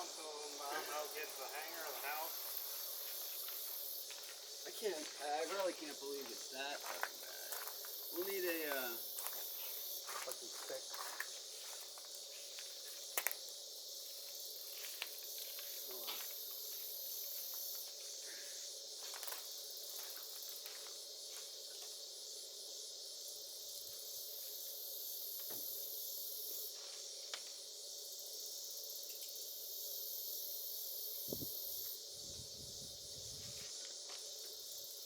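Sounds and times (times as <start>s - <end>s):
fast pulsing insect calls: 0.0s - 35.0s
insects chirring: 0.0s - 35.0s.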